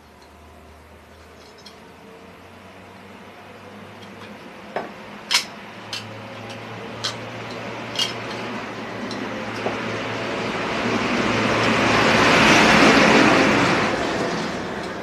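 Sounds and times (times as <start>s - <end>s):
sharp metallic clicks and clinks: 1.2s - 1.8s, 5.2s - 9.6s.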